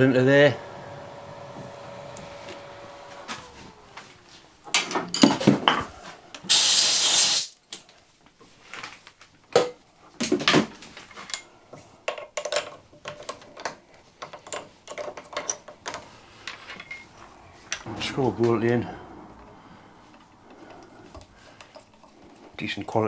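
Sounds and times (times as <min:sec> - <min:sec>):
short hiss: 0:06.5 - 0:07.6
metal tools clinking: 0:13.6 - 0:17.9.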